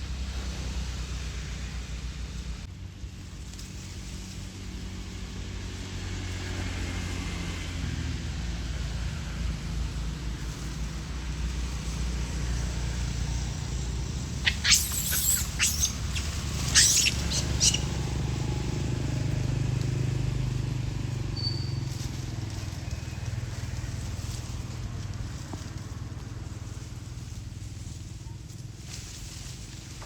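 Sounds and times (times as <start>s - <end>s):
vehicle engine rumble: 0.0s - 30.0s
sharp high squeaks: 14.3s - 18.0s.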